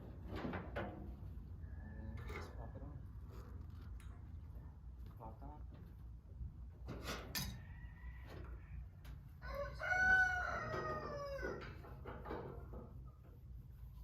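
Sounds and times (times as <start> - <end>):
rooster crowing: 7.5 - 11.8.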